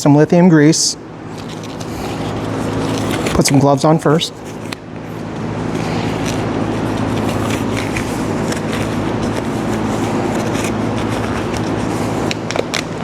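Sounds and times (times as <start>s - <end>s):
low machine hum: 0.0s - 13.0s
gloves rustling and snapping: 1.3s - 13.0s.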